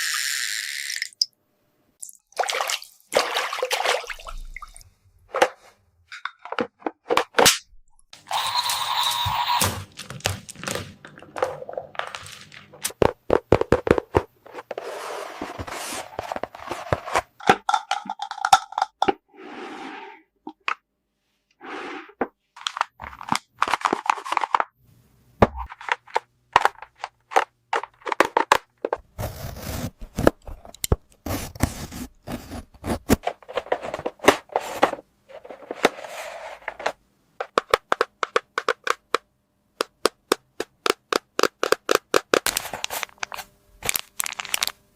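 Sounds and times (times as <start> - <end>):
plastic toy pieces clicking: 39.8 - 42.6.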